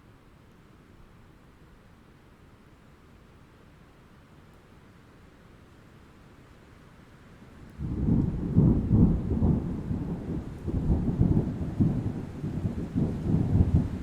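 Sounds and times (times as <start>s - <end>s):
faint rain hiss: 0.0s - 14.0s
rolling thunder rumble: 7.8s - 14.0s.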